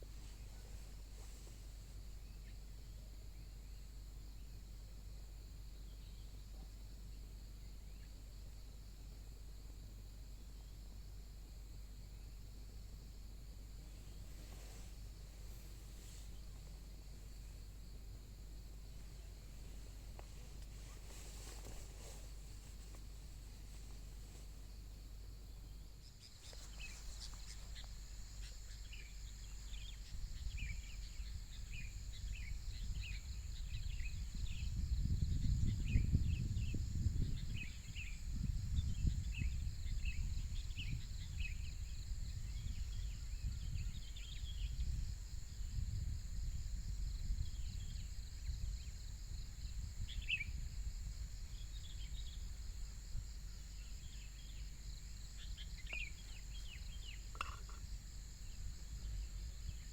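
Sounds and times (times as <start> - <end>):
high insect drone: 0.0 - 59.9
low wind rumble on microphone: 0.0 - 59.9
birds chirping: 25.7 - 34.0, 53.7 - 59.9.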